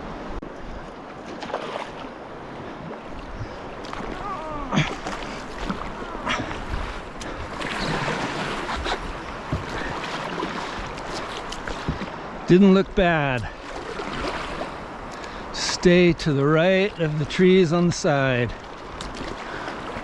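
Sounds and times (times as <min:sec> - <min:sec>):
river water rushing: 0:00.0 - 0:20.0
paddle splashes and knocks: 0:00.4 - 0:15.4, 0:18.4 - 0:20.0
wind on microphone: 0:02.6 - 0:12.2.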